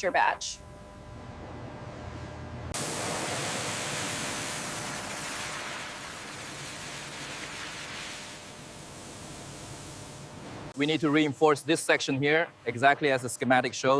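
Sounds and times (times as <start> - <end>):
loud steady hiss: 2.7 - 13.2.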